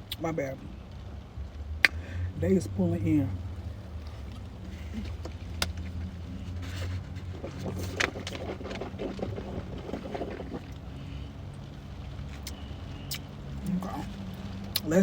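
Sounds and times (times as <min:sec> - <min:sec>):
low hum: 0:01.8 - 0:15.0
chewing crunchy food: 0:03.5 - 0:14.9.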